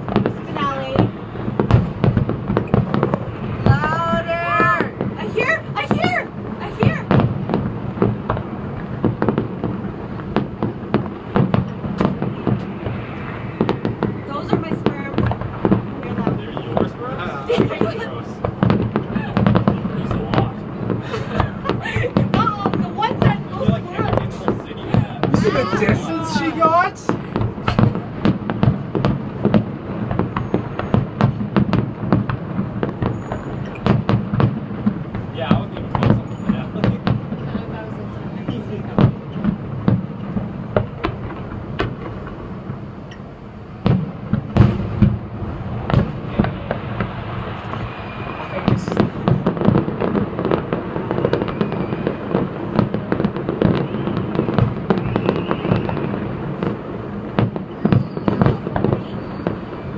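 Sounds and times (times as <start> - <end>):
steady low rumble: 0.0 - 30.1, 34.6 - 51.1
fireworks bangs: 0.0 - 59.9.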